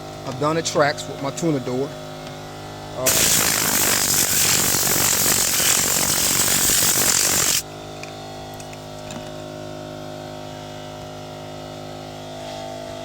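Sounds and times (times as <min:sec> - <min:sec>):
steady hum: 0:02.8 - 0:07.6
compressed air gun hissing: 0:03.0 - 0:07.6.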